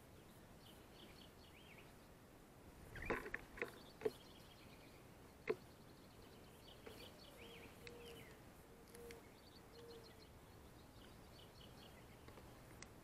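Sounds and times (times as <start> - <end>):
bird chirps and calls: 2.9 - 12.4
soft clicks: 7.8 - 9.9, 12.2 - 13.0.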